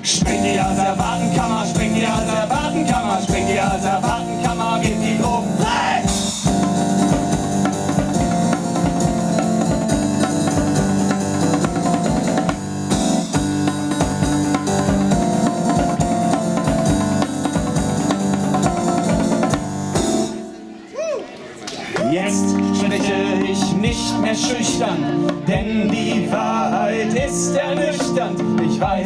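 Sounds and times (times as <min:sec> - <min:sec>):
steady drum beat: 0:00.0 - 0:20.5, 0:22.1 - 0:29.0
electric piano chords: 0:00.0 - 0:20.9.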